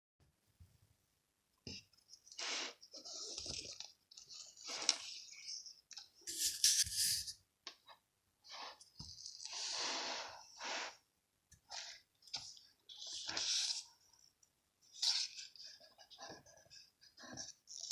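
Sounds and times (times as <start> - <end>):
paper rustling and crinkling: 6.3 - 7.3.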